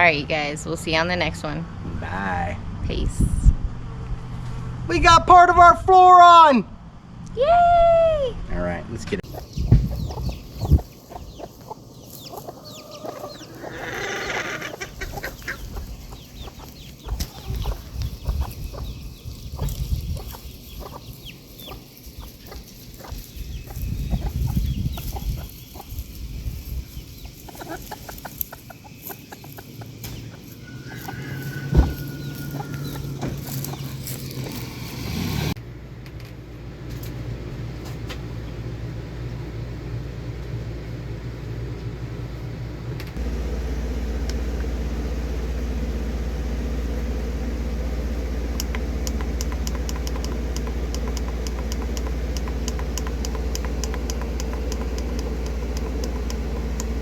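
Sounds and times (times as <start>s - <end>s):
steady low hum: 6.6s - 57.0s
chickens clucking: 9.2s - 35.2s, 47.9s - 57.0s
knocks and clicks: 48.6s - 57.0s.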